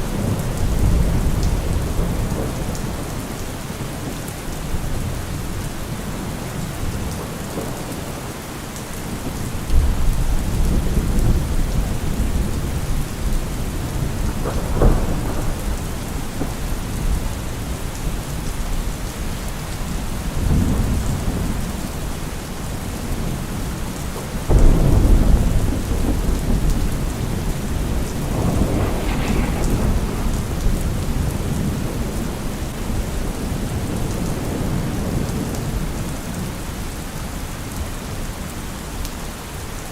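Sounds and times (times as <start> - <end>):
thunder rumbling: 0.0 - 3.4, 9.1 - 22.1, 22.7 - 36.5
heavy rain: 0.0 - 39.9
thunder clap: 9.2 - 18.4, 24.5 - 35.8.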